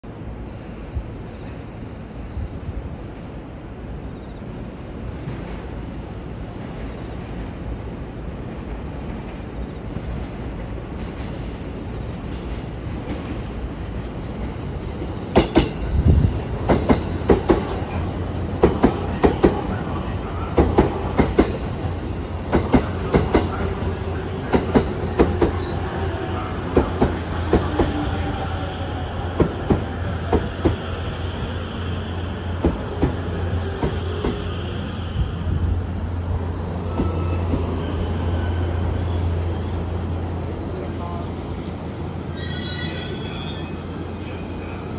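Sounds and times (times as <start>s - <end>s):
train rumbling: 0.0s - 44.9s.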